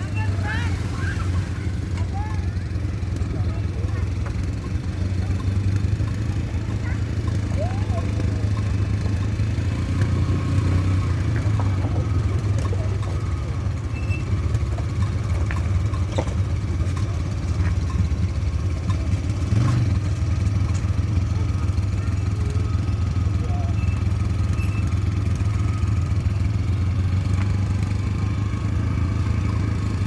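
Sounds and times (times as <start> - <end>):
engine humming: 0.0 - 30.0
light knocks and rattles: 0.8 - 21.5.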